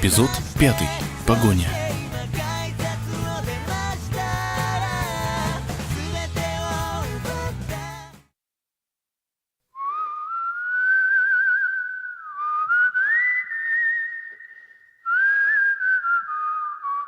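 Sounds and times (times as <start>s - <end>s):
person whistling a slow tune: 9.8s - 17.0s.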